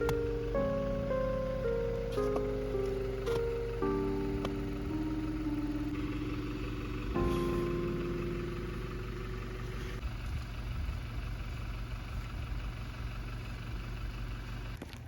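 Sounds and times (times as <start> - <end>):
held multi-pitch tone: 0.0 - 9.6
low engine rumble: 0.0 - 15.0.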